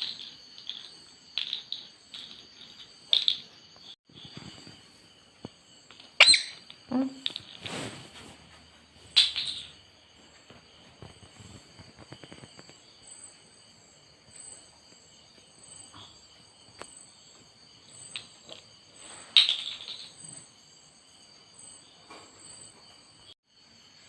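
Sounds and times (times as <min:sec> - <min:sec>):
crickets chirring: 0:00.0 - 0:24.0
parrot squawks: 0:06.2 - 0:06.6.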